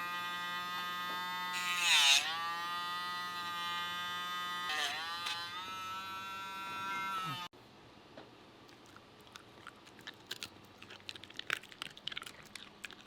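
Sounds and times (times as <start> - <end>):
electric nail grinder whining: 0.0 - 7.5
grinder grinding nail: 0.0 - 7.5.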